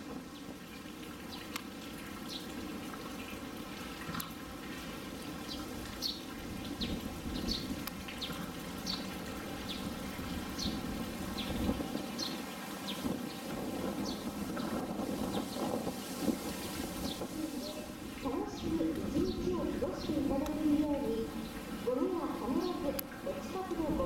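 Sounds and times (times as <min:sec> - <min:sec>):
low outdoor background rush: 0:00.0 - 0:24.0
small birds chirping: 0:02.2 - 0:02.6, 0:05.3 - 0:15.8, 0:16.4 - 0:24.0.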